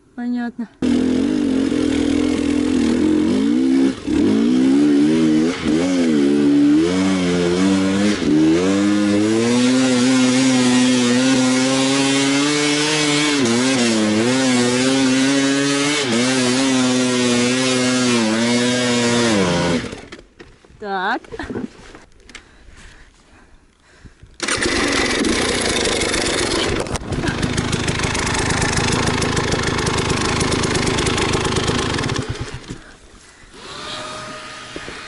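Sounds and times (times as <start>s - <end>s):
motorcycle engine revving: 0.8s - 20.1s, 24.4s - 32.9s.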